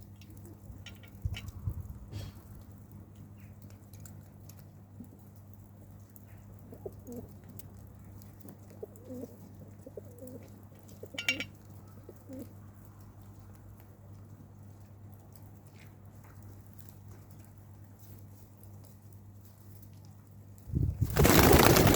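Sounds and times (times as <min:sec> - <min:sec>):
pigeons cooing: 0:08.8 - 0:11.4.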